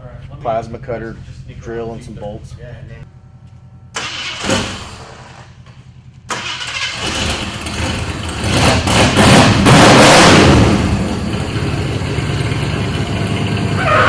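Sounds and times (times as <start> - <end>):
car engine cranking and starting: 3.9 - 14.0.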